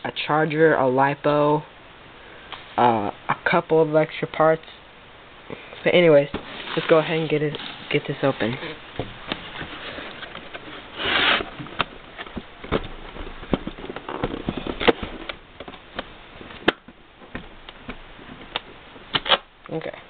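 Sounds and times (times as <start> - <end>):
cardboard and plastic packaging rustling: 5.8 - 19.4.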